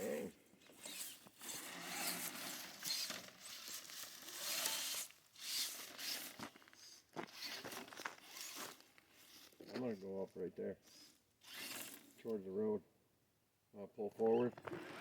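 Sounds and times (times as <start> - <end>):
crunching and scraping of gravel: 1.5 - 10.3.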